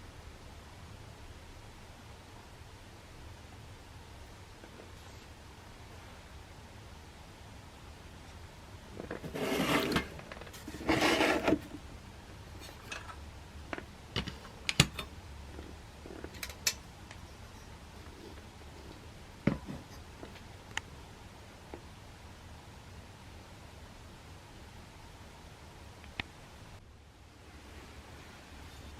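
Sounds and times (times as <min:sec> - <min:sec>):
rustling scraping of metal stove: 0:08.9 - 0:11.8.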